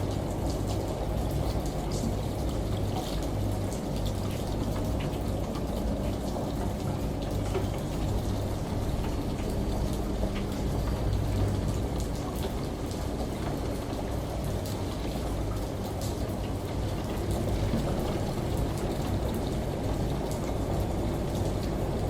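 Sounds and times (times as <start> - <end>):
rain falling: 0.0 - 22.0
washing machine hum: 0.0 - 22.0.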